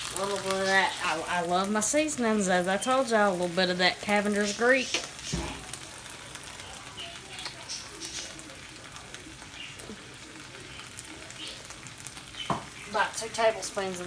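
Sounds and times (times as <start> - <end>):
beans sizzling in a skillet: 0.0 - 14.0.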